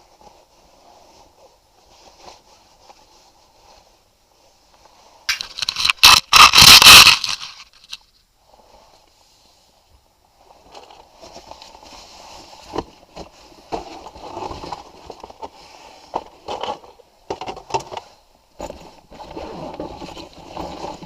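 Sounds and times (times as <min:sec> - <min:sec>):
packaging rustling: 0:05.3 - 0:07.8.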